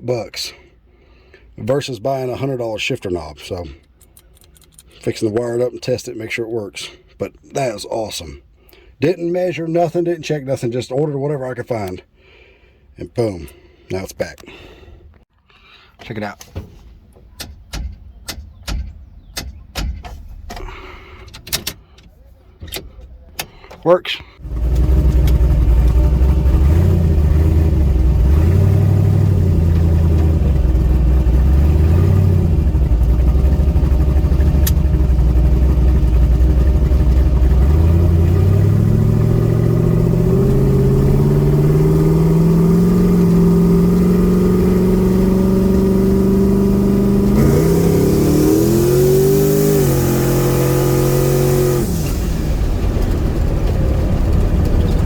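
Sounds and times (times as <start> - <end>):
car engine revving: 24.4 - 55.0.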